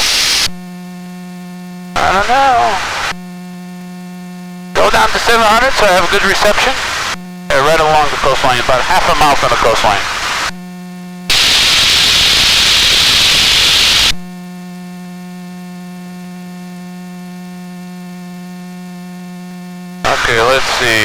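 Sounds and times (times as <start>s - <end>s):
radio static hiss: 0.0s - 0.6s, 1.9s - 3.2s, 4.8s - 10.6s, 11.3s - 14.2s, 20.0s - 21.0s
electrical hum on intercom: 1.9s - 3.3s, 4.7s - 10.6s, 11.3s - 14.2s, 20.0s - 21.0s.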